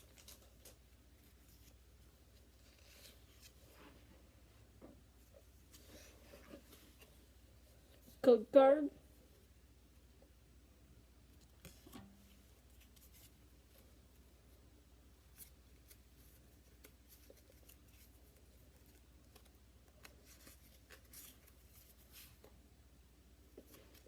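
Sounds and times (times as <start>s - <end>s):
trading cards being handled: 0.0s - 4.0s, 15.2s - 22.6s.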